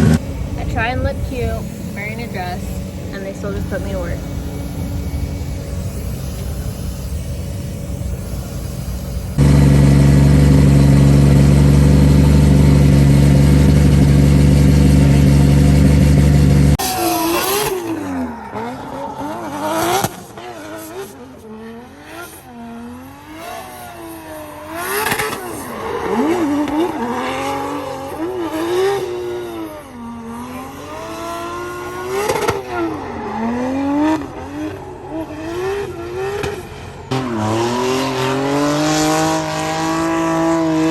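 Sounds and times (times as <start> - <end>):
loud steady drone: 0.0 - 22.0
car engine revving: 0.0 - 40.9.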